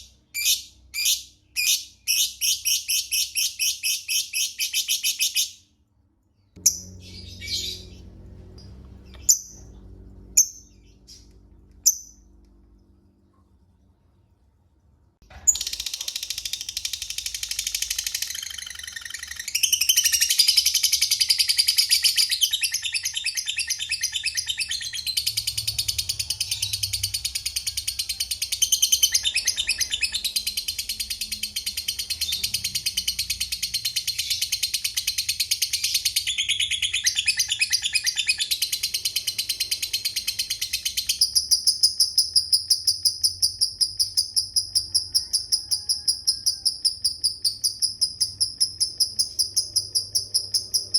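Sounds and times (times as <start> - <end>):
lovebird chattering song: 15.5 - 50.9.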